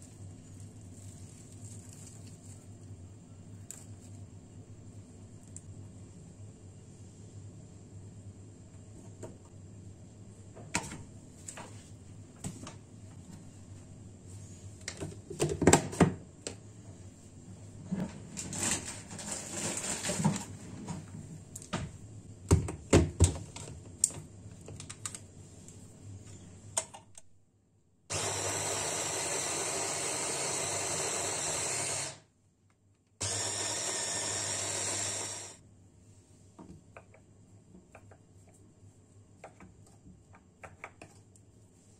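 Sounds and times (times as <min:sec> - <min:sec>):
kitchen appliance motor running: 0:28.1 - 0:32.2, 0:33.2 - 0:35.6.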